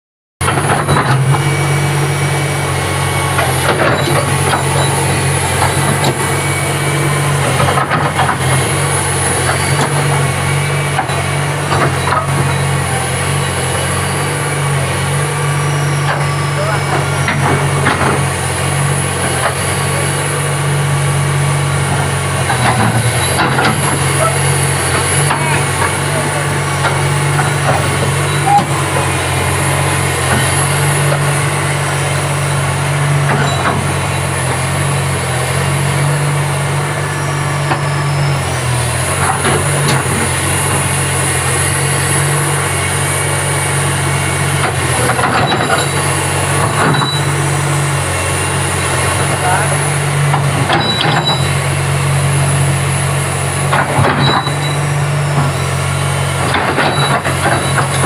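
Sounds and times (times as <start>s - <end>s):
excavator diesel engine running: 0.4s - 58.0s
short knocks and clanks: 22.0s - 26.2s, 44.6s - 47.4s, 50.3s - 51.6s, 53.6s - 55.6s, 56.4s - 58.0s.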